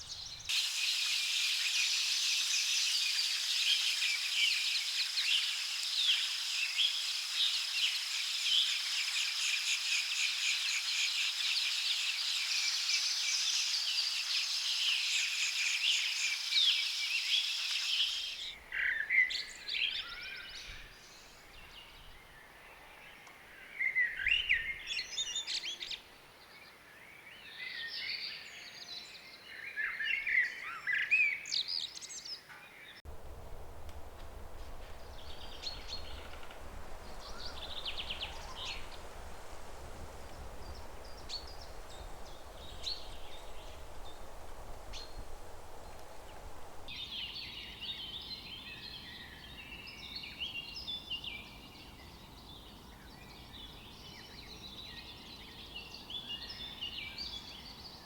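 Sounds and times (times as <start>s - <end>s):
birds chirping: 33.1s - 49.2s.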